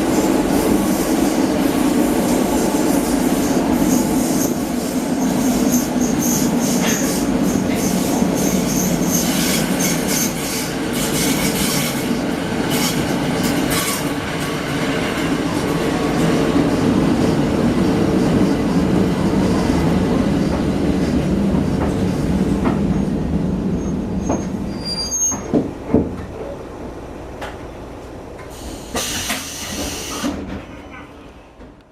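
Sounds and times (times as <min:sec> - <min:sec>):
train rumbling on rails: 0:00.0 - 0:31.9
wheel squeal: 0:23.8 - 0:25.6
burst of hiss: 0:28.6 - 0:30.4.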